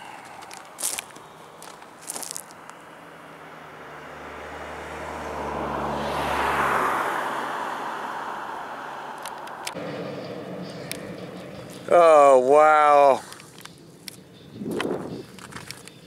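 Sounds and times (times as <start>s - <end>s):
vehicle passing by: 0.0s - 15.4s.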